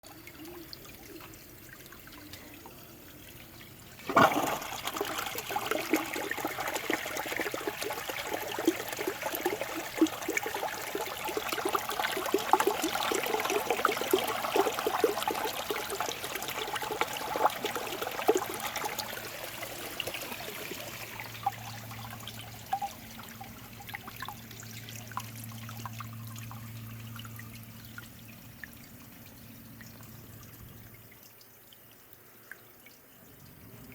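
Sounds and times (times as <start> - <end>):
toilet flushing: 0.0 - 28.0
steady low hum: 20.4 - 31.2.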